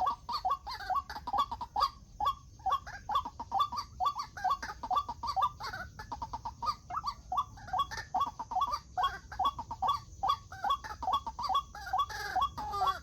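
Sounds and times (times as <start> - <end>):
waterhen calling: 0.0 - 13.0.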